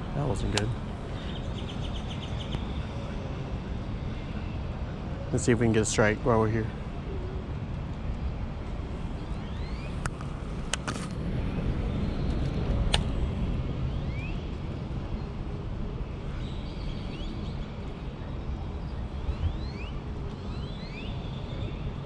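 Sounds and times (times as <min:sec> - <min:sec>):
steady low rumble: 0:00.0 - 0:20.3
birds chirping: 0:00.1 - 0:03.1.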